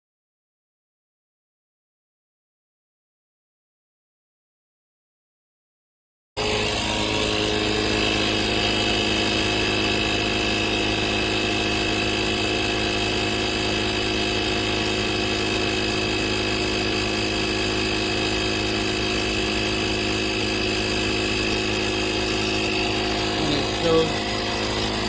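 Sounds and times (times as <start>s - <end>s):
tire inflator compressor whining: 6.4s - 25.0s.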